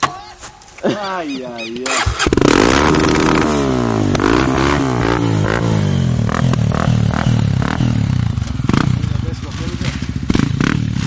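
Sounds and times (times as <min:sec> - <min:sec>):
dirt motorcycles revving: 0:00.9 - 0:11.0.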